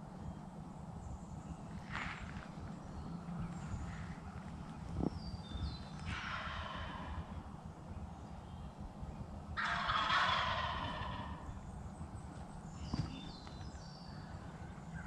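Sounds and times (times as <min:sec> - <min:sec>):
small birds chirping: 0:00.0 - 0:15.0
turkey gobbling: 0:06.1 - 0:07.3, 0:09.6 - 0:11.5.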